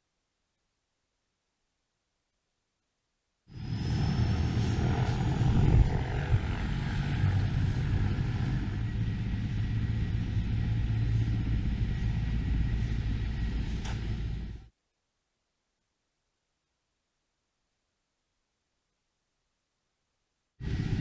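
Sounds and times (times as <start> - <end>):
faint high whine: 0.0 - 21.0
helicopter engine rumble: 3.5 - 14.7, 20.6 - 21.0.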